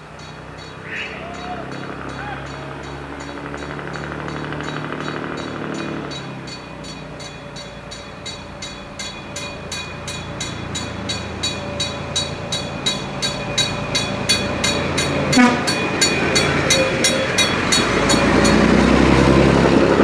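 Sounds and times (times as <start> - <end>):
steam locomotive exhaust chuffs: 0.0 - 20.0.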